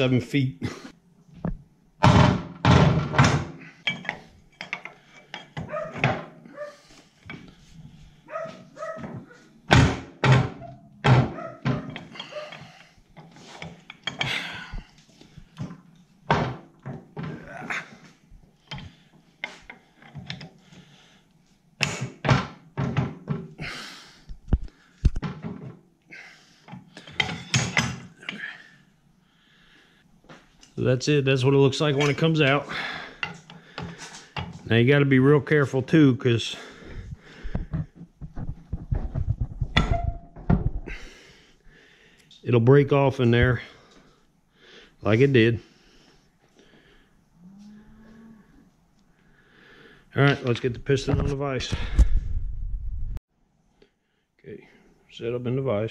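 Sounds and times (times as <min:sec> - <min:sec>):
pipe wrench clunking on metal: 0:02.0 - 0:06.3.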